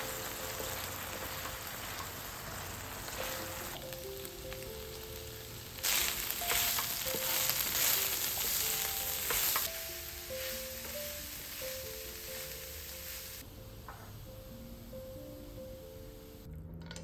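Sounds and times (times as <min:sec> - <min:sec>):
food sizzling in a hot pan: 0:00.0 - 0:13.4
soft background music: 0:00.0 - 0:17.0.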